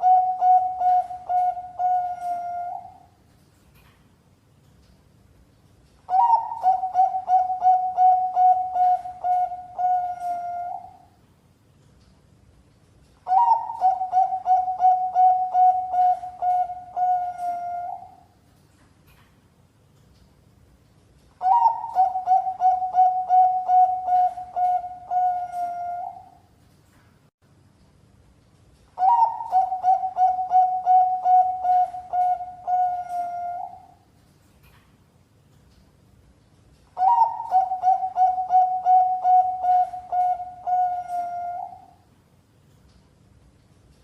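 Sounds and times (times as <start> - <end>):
dove cooing: 0.0 - 3.1, 6.1 - 11.1, 13.3 - 18.2, 21.4 - 26.4, 29.0 - 34.0, 37.0 - 42.0.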